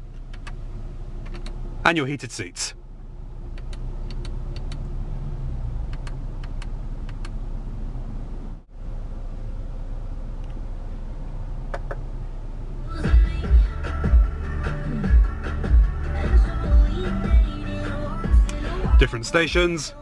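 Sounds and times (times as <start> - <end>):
car engine idling hum: 0.0 - 20.0
radio music with a beat: 13.1 - 20.0.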